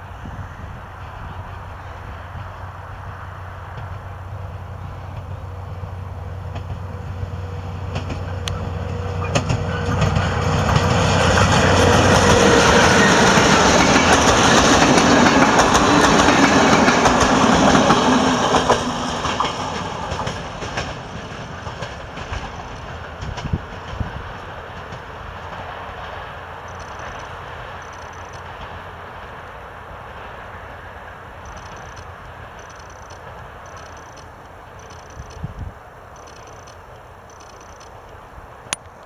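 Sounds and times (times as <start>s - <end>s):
locomotive engine hum: 0.0s - 39.0s
wheel and rail noise: 0.0s - 39.0s
clicks over rail joints: 24.7s - 28.8s, 31.4s - 39.0s.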